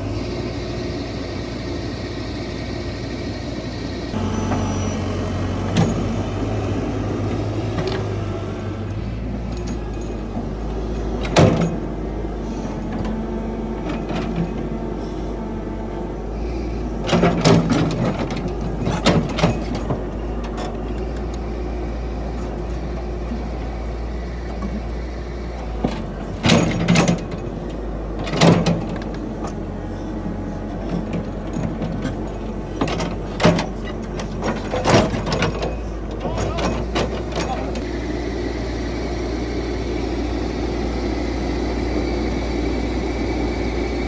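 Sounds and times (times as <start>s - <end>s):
diesel engine running: 0.0s - 44.0s
metal track chain clanking: 9.4s - 15.4s, 16.9s - 24.9s, 25.5s - 37.9s.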